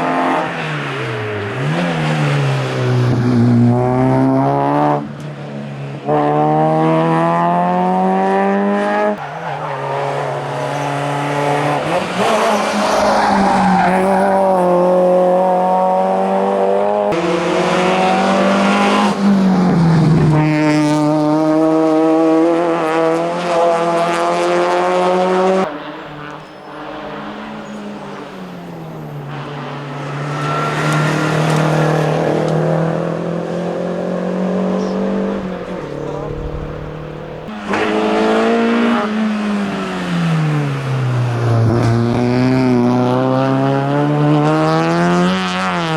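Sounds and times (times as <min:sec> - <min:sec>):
race cars accelerating hard: 0:00.0 - 0:45.9.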